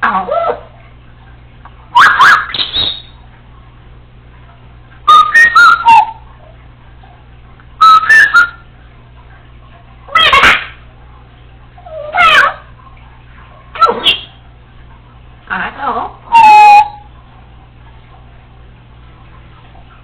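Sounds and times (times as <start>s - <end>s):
parrot whistling: 1.9s - 3.2s, 5.1s - 6.2s, 7.8s - 8.6s, 10.1s - 10.7s, 11.9s - 12.6s, 13.8s - 14.4s, 16.3s - 17.1s.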